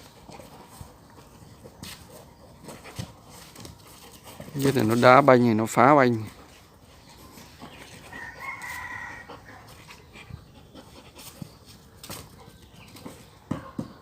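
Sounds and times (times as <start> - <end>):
light knocks and scuffs: 0.0 - 5.2, 11.2 - 14.0
rooster crowing: 8.1 - 9.8.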